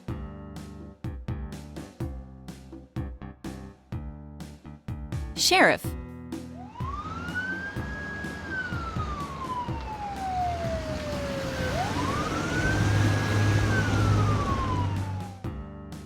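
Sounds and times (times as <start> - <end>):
siren wailing: 6.7 - 15.4.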